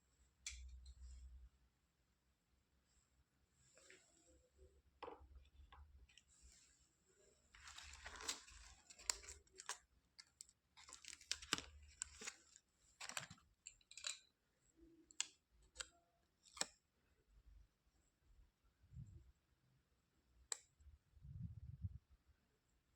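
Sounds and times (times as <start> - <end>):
plastic toys rustling: 7.5 - 14.2
plastic toys clicking and tapping: 13.0 - 14.4.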